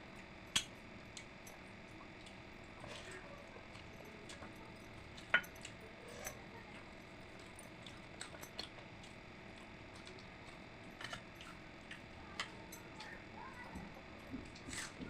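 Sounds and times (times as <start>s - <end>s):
soft squishing of food: 0.1s - 15.0s.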